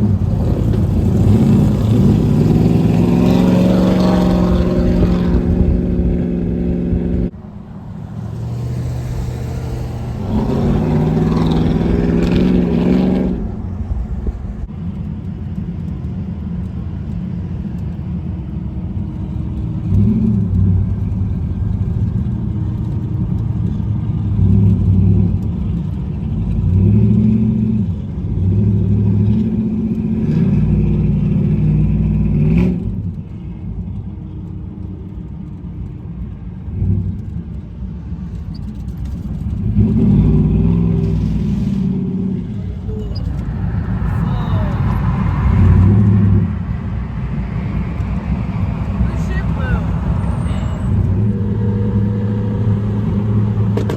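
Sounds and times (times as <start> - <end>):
car engine revving hard: 0.0 - 7.3, 8.0 - 13.9, 39.6 - 53.9
low exhaust rumble: 0.0 - 27.0, 38.7 - 53.9.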